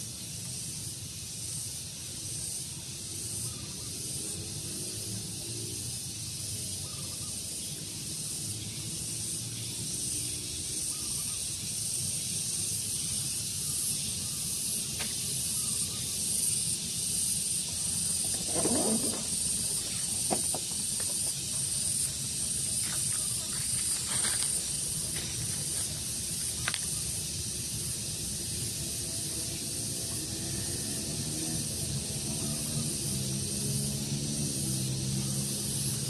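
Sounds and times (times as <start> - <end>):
steady high hiss: 0.0 - 36.0
birds chirping: 12.8 - 27.9.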